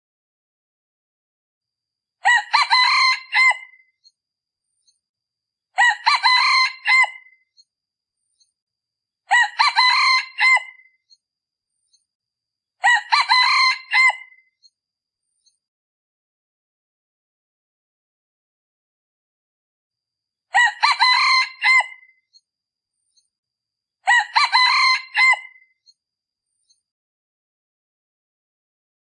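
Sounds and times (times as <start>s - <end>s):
junglefowl cock crowing: 2.2s - 3.8s, 5.8s - 7.4s, 9.3s - 10.9s, 12.8s - 14.4s, 20.5s - 22.1s, 24.0s - 25.6s.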